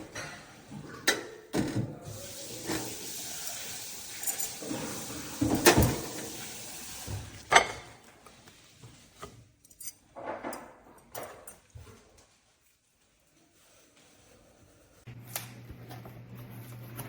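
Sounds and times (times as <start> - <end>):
kitchenware clinking and knocking: 4.1 - 6.4, 7.0 - 8.1, 9.7 - 11.7.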